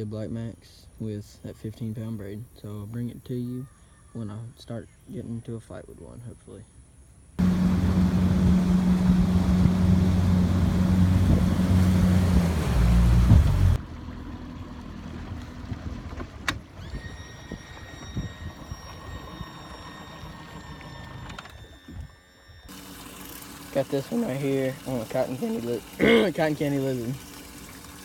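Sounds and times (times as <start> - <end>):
motor engine running: 7.4 - 28.0
faint high steady tones: 17.1 - 25.8.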